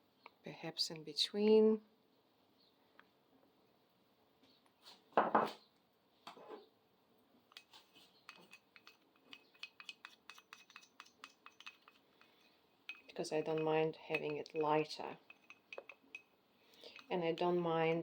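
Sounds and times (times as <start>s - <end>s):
paint cups and tools clinking: 7.5s - 18.0s.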